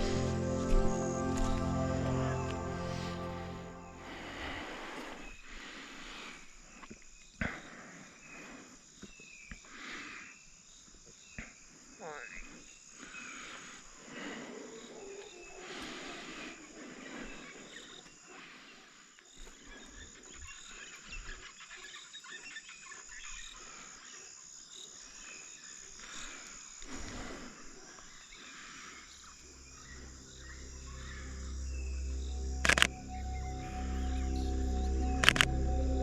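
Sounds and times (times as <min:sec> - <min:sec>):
music: 0:00.0 - 0:04.6, 0:29.4 - 0:36.0
insect drone: 0:00.0 - 0:04.7, 0:26.2 - 0:36.0.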